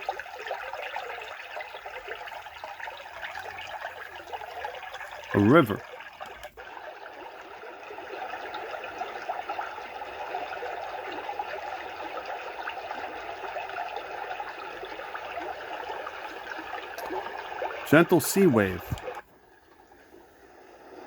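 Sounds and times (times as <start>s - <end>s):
flowing water from a speaker: 0.0s - 21.0s.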